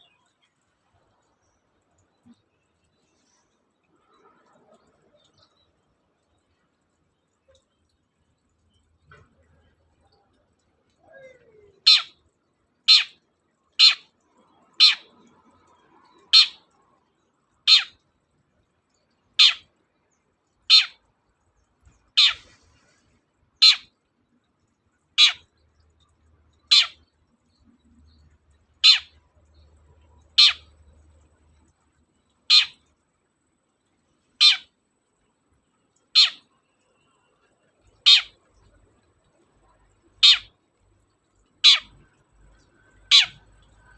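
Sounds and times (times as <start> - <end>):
bird giving sharp calls: 22.2 - 22.6, 32.5 - 32.8, 43.1 - 43.4.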